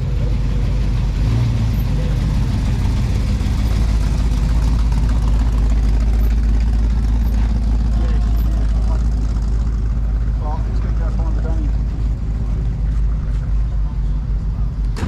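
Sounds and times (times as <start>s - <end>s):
car engine idling: 0.0s - 15.0s
faint voices: 7.3s - 14.9s.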